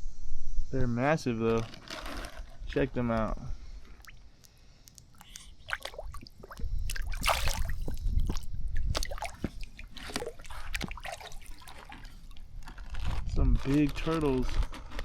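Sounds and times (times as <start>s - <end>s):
water splashing and dripping: 3.9s - 12.5s.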